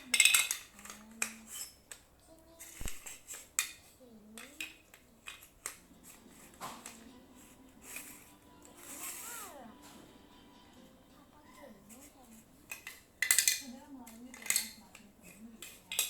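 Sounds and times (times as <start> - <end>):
plastic bricks clicking: 3.0 - 5.8, 12.7 - 16.0.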